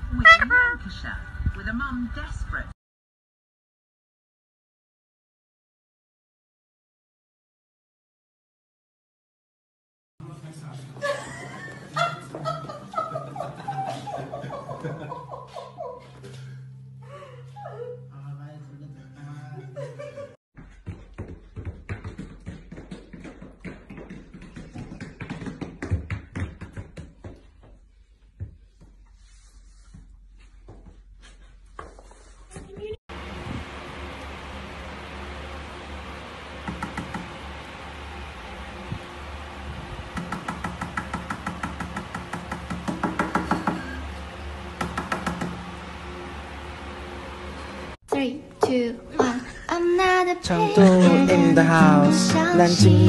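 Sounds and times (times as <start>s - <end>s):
rapid tapping and knocking: 20.8s - 27.8s, 36.6s - 37.3s, 40.2s - 43.8s, 44.8s - 45.6s.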